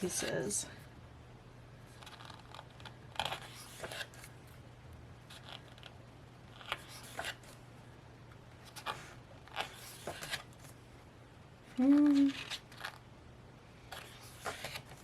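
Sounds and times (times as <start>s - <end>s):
faint steady hum: 0.0s - 15.0s
pages turning: 2.0s - 4.3s, 5.3s - 7.6s, 8.6s - 10.8s, 11.9s - 13.0s, 13.9s - 15.0s.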